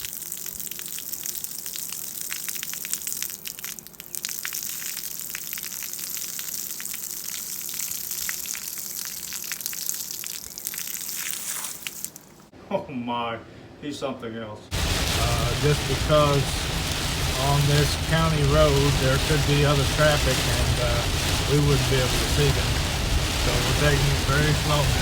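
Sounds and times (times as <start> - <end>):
heavy water splashing: 14.7 - 25.0.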